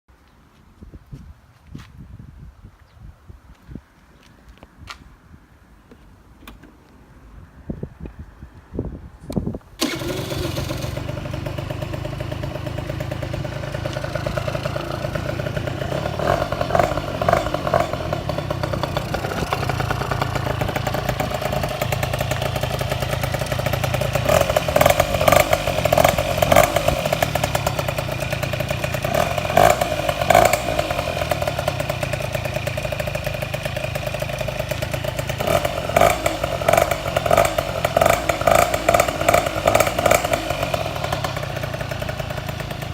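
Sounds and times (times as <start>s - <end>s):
scooter engine idling and revving: 9.8s - 42.9s.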